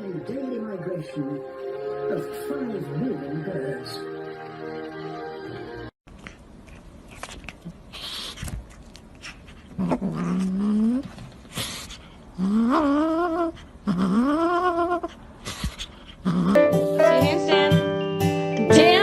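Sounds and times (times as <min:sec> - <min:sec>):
animal rising wavering cries: 0:12.4 - 0:15.1.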